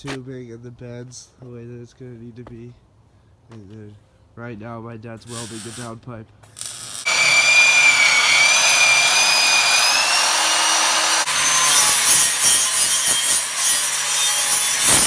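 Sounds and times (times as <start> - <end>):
angle grinder cutting steel: 5.3 - 5.9, 6.5 - 15.0.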